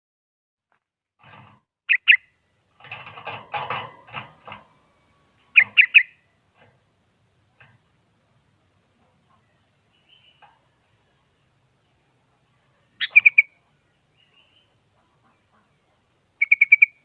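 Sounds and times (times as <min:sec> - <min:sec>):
bulbul calling: 0:01.9 - 0:02.3, 0:05.5 - 0:06.2, 0:13.0 - 0:13.6, 0:14.2 - 0:17.0
harsh bird chattering: 0:01.9 - 0:02.3, 0:05.6 - 0:06.2, 0:13.0 - 0:13.6, 0:16.4 - 0:17.0.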